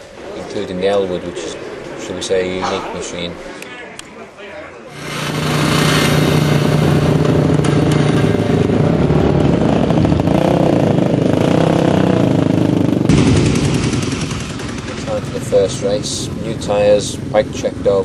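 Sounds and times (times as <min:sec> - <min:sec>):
motorcycle engine revving: 0:04.9 - 0:18.0.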